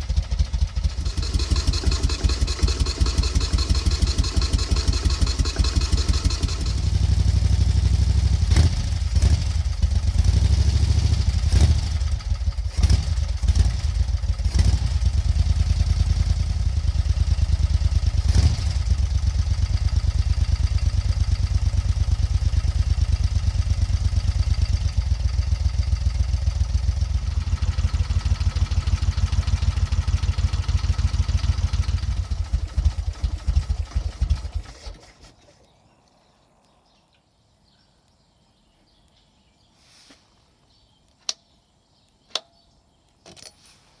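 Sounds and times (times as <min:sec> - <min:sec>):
motorcycle engine idling: 0:00.0 - 0:35.4
sharp clicks: 0:41.0 - 0:43.6.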